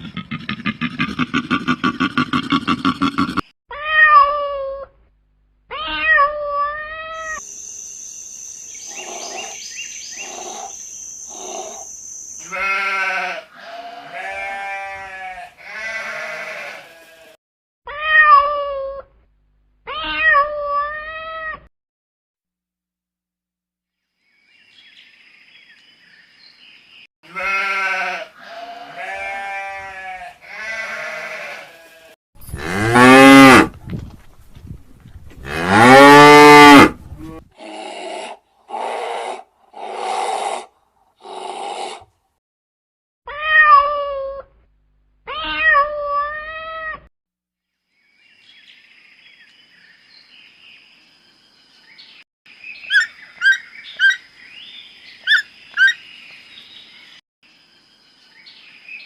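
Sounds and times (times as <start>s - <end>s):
farm animal calls: 8.9s - 17.4s, 52.9s - 54.3s, 55.2s - 56.1s
cow mooing: 32.5s - 33.7s, 35.4s - 37.4s.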